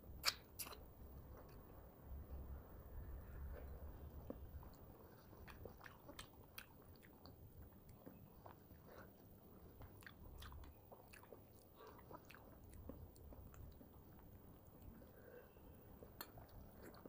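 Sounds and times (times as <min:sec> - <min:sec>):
person chewing crunchy fried food: 0:03.6 - 0:17.0.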